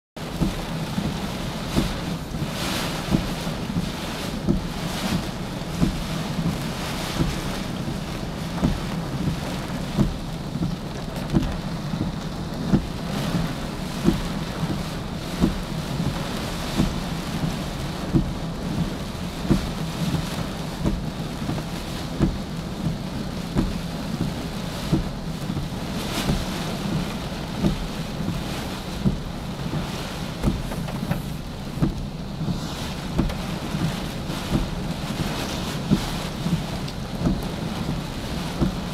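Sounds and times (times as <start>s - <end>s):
short low thump: 30.3s - 32.1s.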